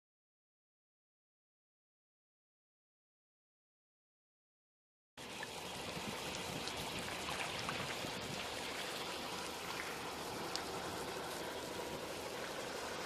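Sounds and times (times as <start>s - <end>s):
rain hissing: 5.2s - 13.0s
sharp raindrop ticks: 5.3s - 13.0s.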